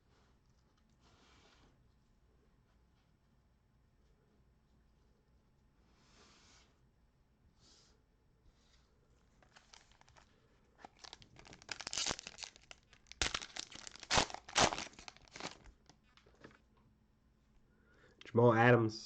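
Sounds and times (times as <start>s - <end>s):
plastic wrapping tearing and crinkling: 9.4s - 16.0s.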